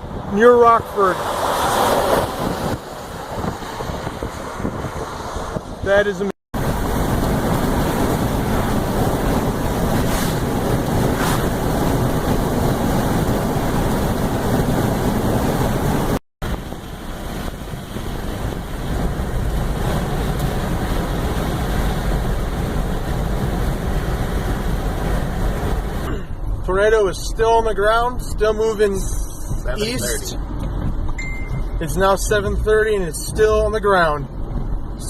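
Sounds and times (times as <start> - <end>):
strong wind on microphone: 1.1 - 26.1.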